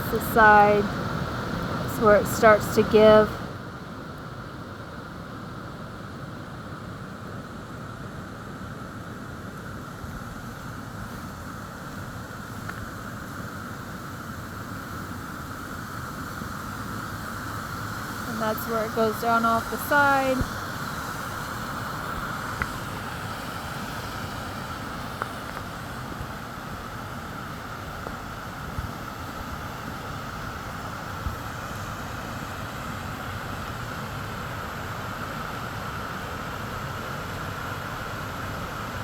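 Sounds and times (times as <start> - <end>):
running water rushing: 9.7 - 39.0.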